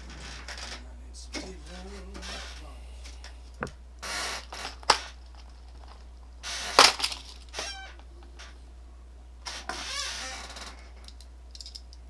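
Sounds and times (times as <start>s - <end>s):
low electrical hum: 0.0s - 12.0s
short rattle of parts: 4.0s - 8.5s, 9.5s - 12.0s
small parts clicking and knocking: 4.4s - 7.6s, 9.7s - 12.0s.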